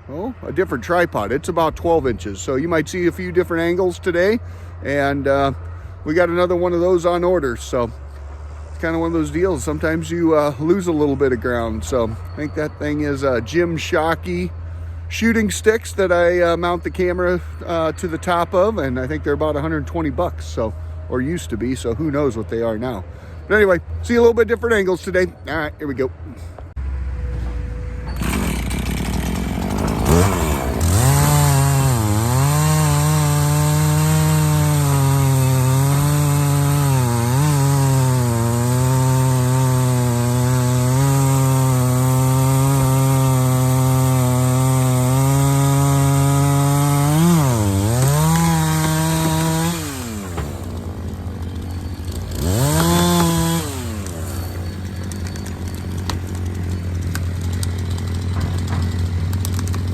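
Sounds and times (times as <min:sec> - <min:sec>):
chainsaw cutting log: 0:28.2 - 0:59.9.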